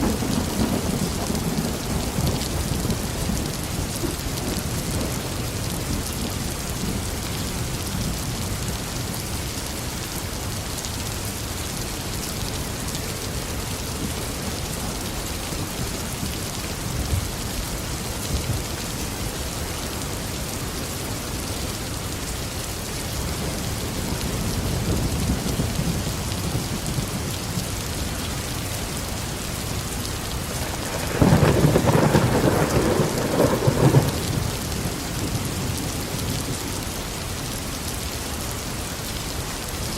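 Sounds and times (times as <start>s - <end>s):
thunder rumbling: 0.0s - 8.4s, 29.7s - 36.9s
steady rain falling: 0.0s - 39.9s.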